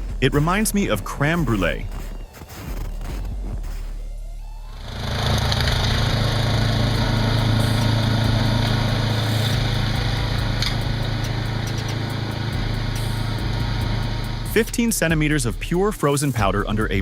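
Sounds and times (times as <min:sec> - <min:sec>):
snowblower engine running: 0:04.7 - 0:15.4.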